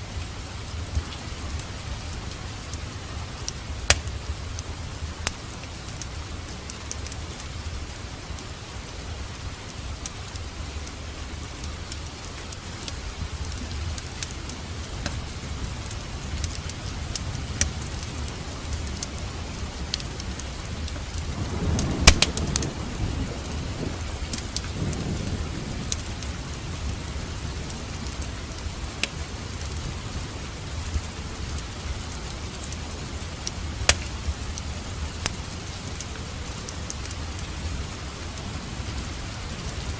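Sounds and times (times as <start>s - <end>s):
steady rain: 0.0s - 39.9s
thunder crack and rumble: 20.9s - 30.9s
sharp clicks: 21.8s - 22.7s.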